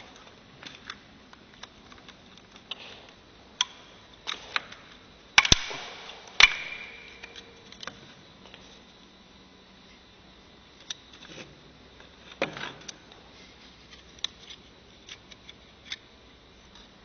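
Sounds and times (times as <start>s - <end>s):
sharp metal clanks: 5.4s - 7.4s.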